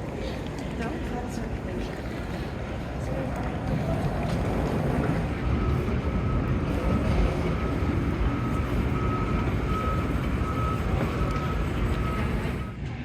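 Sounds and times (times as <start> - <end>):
low rumble of traffic: 0.0 - 13.0
short repeating beeps: 5.4 - 12.8.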